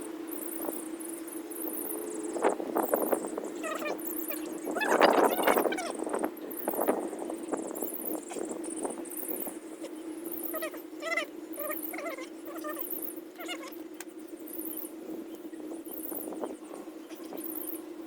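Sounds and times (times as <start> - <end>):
steady low hum: 0.0 - 18.0
short animal calls: 10.4 - 13.8.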